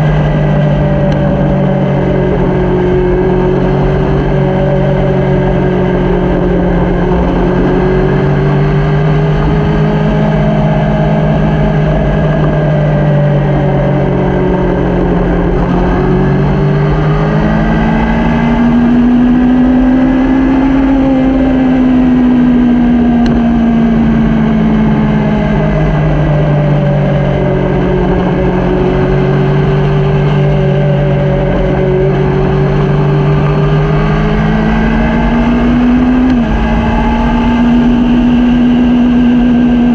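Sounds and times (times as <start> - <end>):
motorcycle engine running: 0.0 - 39.9
steady rushing noise: 23.2 - 39.9.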